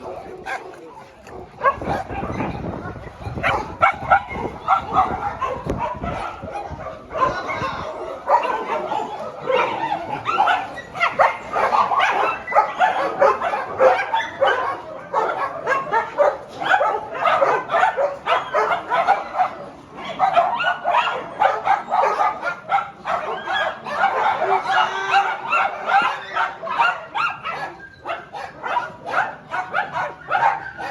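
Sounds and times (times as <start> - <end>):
dogs barking and yipping: 0.0 - 30.9.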